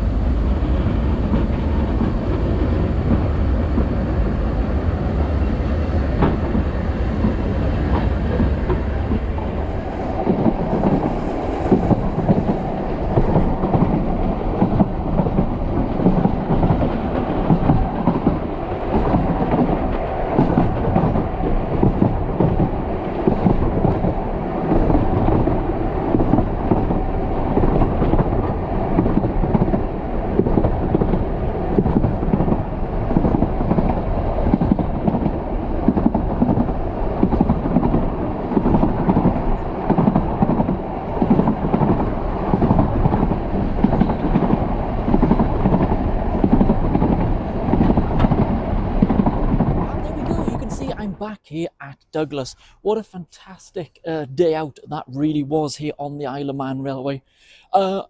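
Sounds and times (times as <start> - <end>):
wheels clattering on track: 0.0 - 51.0
train carriage rumble: 0.0 - 56.5.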